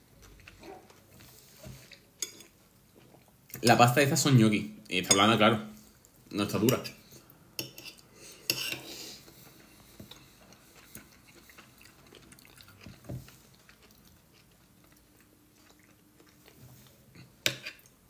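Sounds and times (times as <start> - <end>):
person chewing food: 0.1 - 3.6, 7.2 - 18.0.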